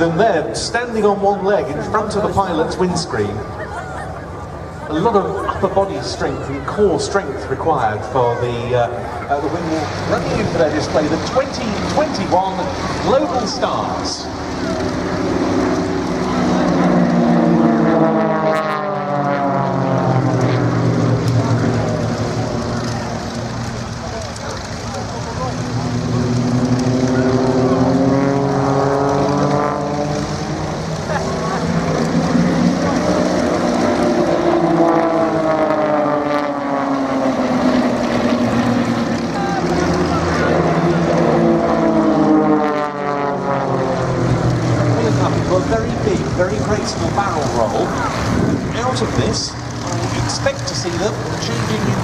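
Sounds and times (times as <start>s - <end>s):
propeller plane engines passing: 0.0s - 52.0s.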